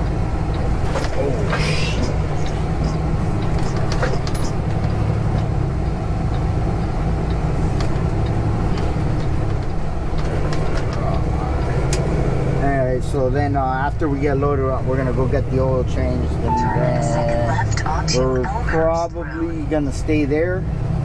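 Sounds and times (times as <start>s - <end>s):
clicks and rattles in cab: 0.0s - 12.2s
truck diesel engine running: 0.0s - 21.0s.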